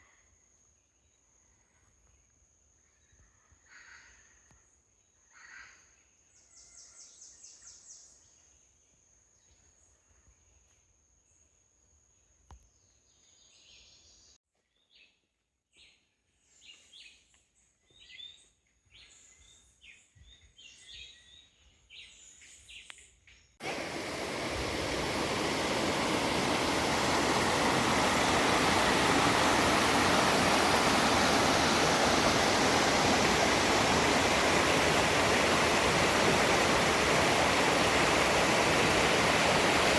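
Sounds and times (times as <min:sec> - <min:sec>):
high thin whine: 0:23.6 - 0:39.9
waterfall rushing: 0:23.6 - 0:39.9.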